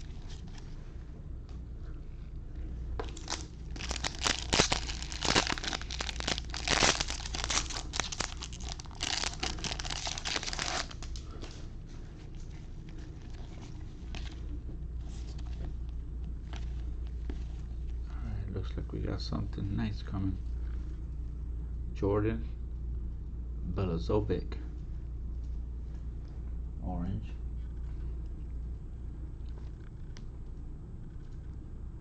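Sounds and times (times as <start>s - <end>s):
wrapper tearing and crinkling: 3.0s - 11.2s
cards being handled: 3.0s - 11.6s.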